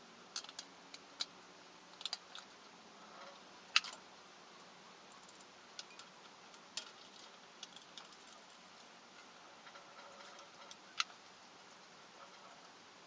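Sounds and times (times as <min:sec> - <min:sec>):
light metallic clicks and clinks: 0:04.6 - 0:11.2.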